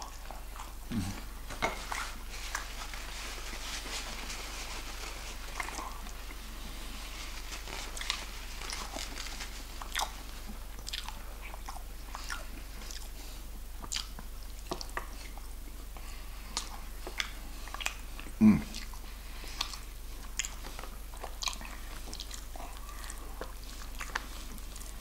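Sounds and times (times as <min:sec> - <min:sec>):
crisp crunches of chewing: 0:00.0 - 0:25.0.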